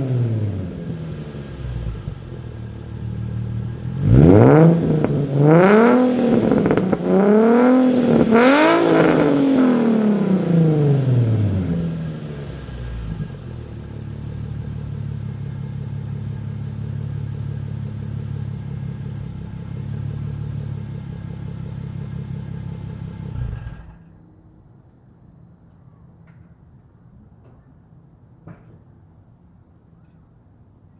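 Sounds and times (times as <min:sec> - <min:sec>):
car engine revving and idling: 0:00.0 - 0:24.2.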